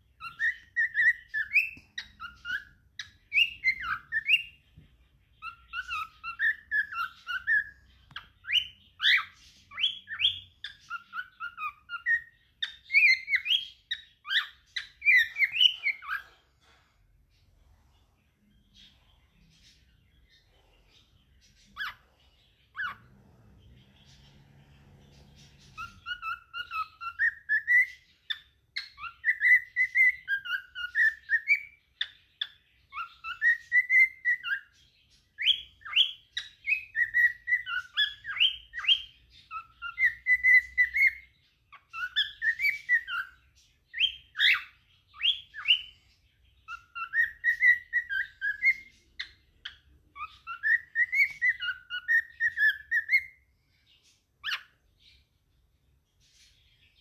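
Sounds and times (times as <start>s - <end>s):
cockatiel whistling: 0.1s - 4.6s, 5.4s - 16.4s, 21.7s - 22.0s, 22.7s - 23.0s, 25.5s - 34.8s, 35.4s - 46.0s, 46.6s - 53.4s, 54.4s - 54.8s.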